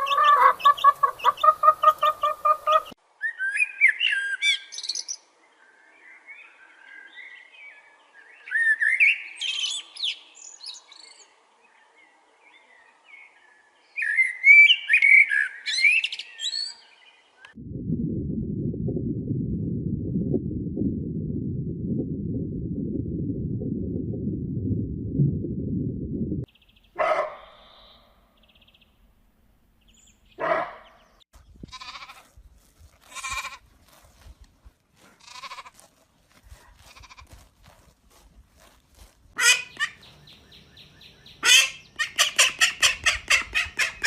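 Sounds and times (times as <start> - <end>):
low rumbling noise: 17.6 - 26.5
goats bleating: 31.7 - 32.3, 33.0 - 33.6, 35.2 - 35.8, 36.8 - 37.4.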